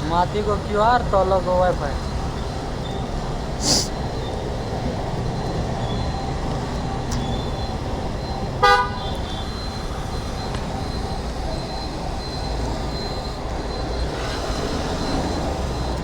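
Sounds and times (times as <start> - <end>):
road traffic rumble: 0.0 - 16.0
vehicle horn toot: 8.6 - 9.7.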